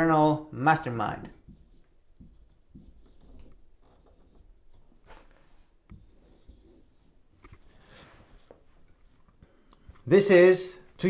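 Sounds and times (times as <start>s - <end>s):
faint scratching and rubbing: 1.3s - 9.4s.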